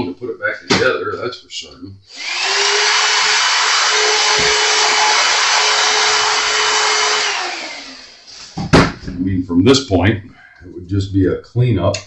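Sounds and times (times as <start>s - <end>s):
electric fan running: 2.1s - 8.4s.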